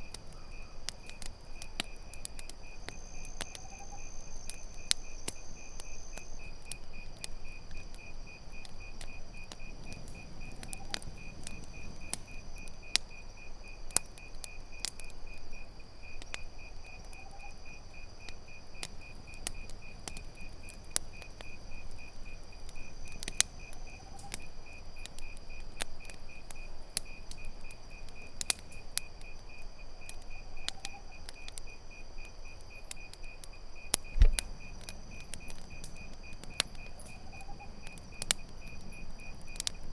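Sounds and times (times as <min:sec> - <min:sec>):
campfire crackling: 0:00.0 - 0:39.9
crickets trilling: 0:00.0 - 0:39.9
low thump: 0:34.2 - 0:34.4.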